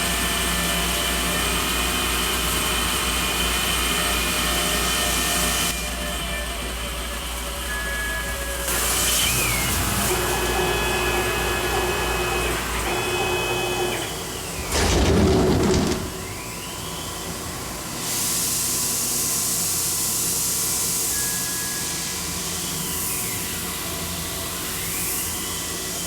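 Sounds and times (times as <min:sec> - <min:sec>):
lathe motor whine: 0:00.4 - 0:14.7.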